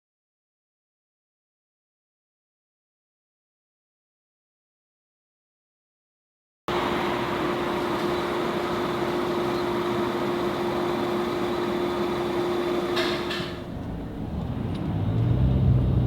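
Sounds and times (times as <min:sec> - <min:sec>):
car running with steady whine: 0:06.7 - 0:16.0.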